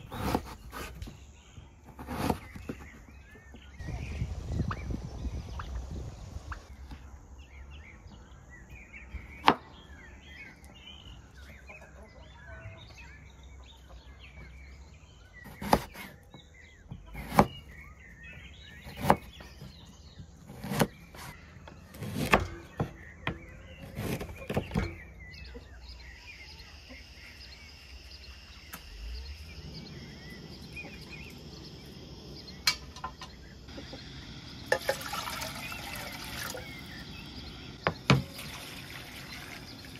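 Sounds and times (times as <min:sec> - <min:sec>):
birds chirping: 0:00.0 - 0:39.9
knife chopping on wooden board: 0:17.1 - 0:17.6, 0:18.8 - 0:19.3, 0:20.5 - 0:21.3, 0:21.9 - 0:24.9.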